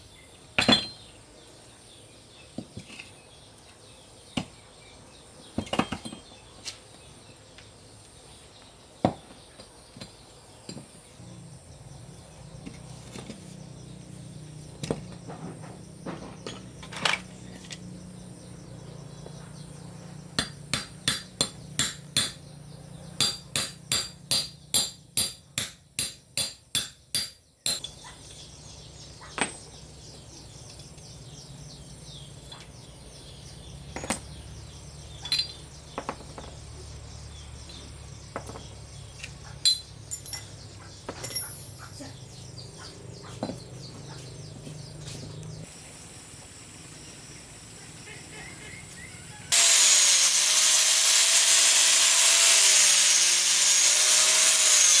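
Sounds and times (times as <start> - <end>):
hammer on metal: 20.4 - 22.4, 23.2 - 27.9
hand tools clinking: 35.2 - 35.6, 39.6 - 41.9
power tool whining: 48.8 - 55.0.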